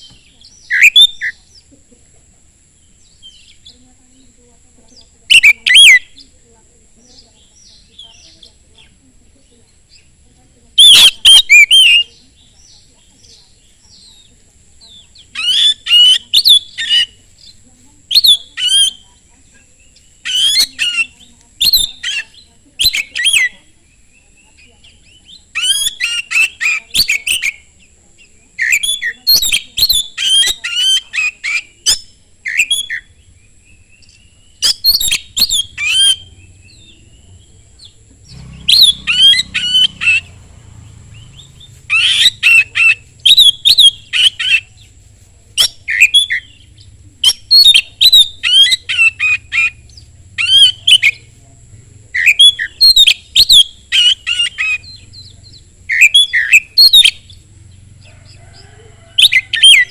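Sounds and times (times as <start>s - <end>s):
bird singing whistled notes: 0.0s - 1.6s, 5.3s - 6.3s, 10.8s - 14.3s, 14.9s - 17.2s, 18.1s - 19.0s, 19.8s - 27.8s, 28.5s - 40.4s, 41.1s - 44.9s, 45.6s - 51.3s, 52.1s - 57.5s.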